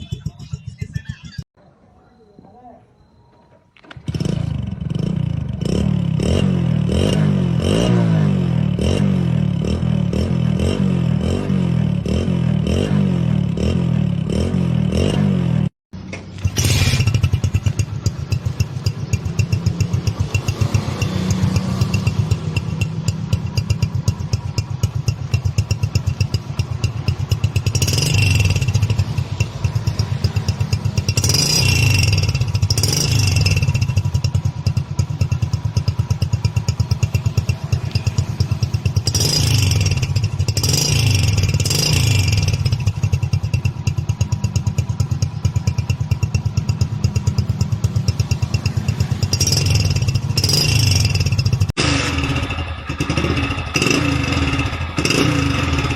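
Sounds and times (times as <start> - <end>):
motorcycle engine revving: 3.8 - 55.9.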